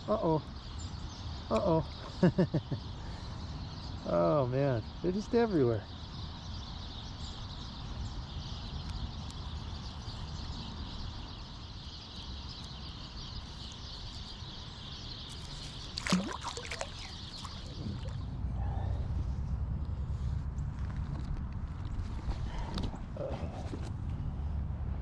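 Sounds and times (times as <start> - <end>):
creek water rushing: 15.8 - 18.4.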